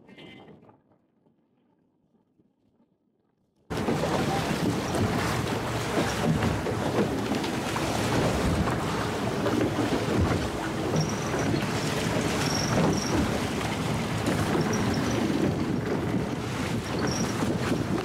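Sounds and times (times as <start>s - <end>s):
boat running noise: 3.7s - 18.0s
water rushing: 3.7s - 18.0s
wind buffeting microphone: 3.7s - 18.0s.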